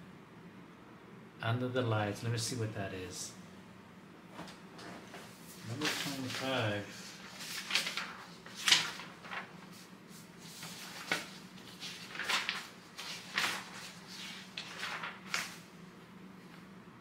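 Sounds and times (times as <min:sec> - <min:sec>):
faint steady hum: 0:00.0 - 0:17.0
trading cards rustling: 0:05.6 - 0:09.8, 0:10.4 - 0:15.6.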